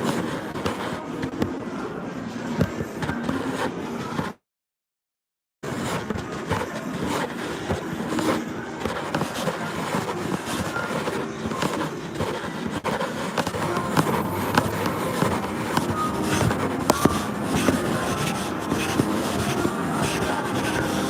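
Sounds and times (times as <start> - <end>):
casino floor din with clicks: 5.9 - 21.0.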